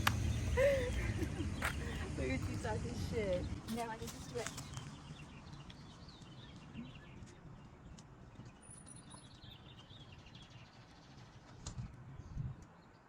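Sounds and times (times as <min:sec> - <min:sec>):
low rumbles: 0:00.0 - 0:08.4
bird chirps and twittering: 0:00.0 - 0:11.6.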